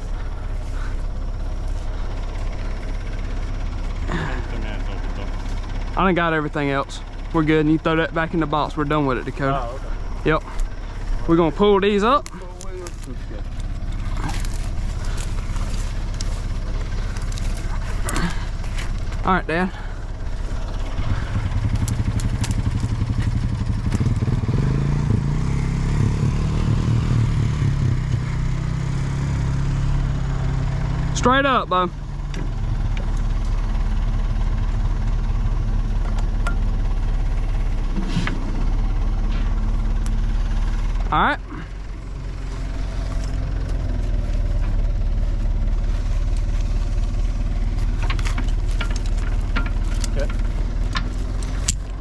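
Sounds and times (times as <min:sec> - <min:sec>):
backhoe engine revving: 0:00.0 - 0:52.0
light metal clanks: 0:47.8 - 0:52.0.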